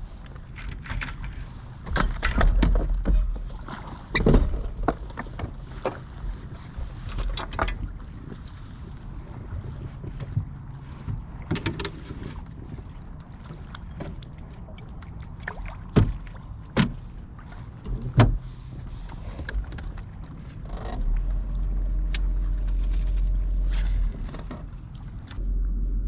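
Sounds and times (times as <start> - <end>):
low motor hum: 0.0 - 26.0
low rumble: 14.5 - 26.0.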